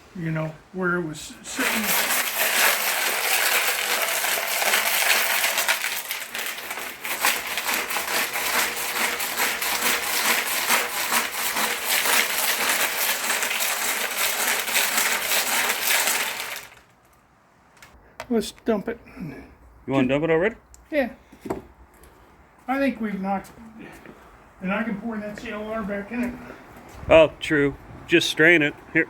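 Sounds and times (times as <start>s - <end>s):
steel nuts rattling in metal tank: 1.5s - 16.8s.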